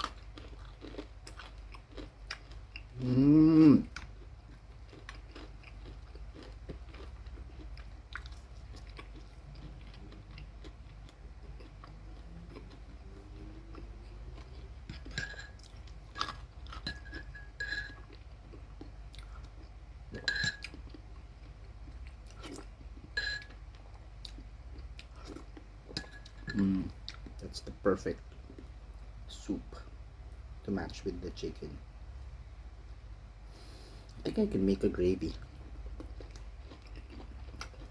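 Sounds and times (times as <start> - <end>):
person chewing fried chicken: 0.0 - 26.0, 35.2 - 37.9.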